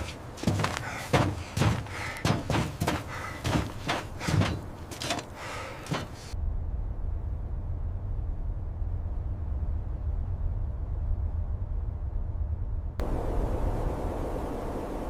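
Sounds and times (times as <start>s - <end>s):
rapid knocks or bangs: 0.0s - 6.3s
steady low rumble: 0.0s - 15.0s.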